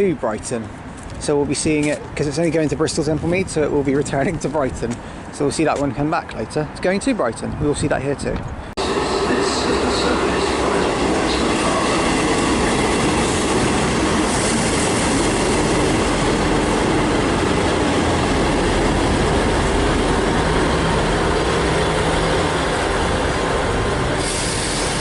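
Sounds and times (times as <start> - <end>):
train wheels on rails: 8.4 - 25.0.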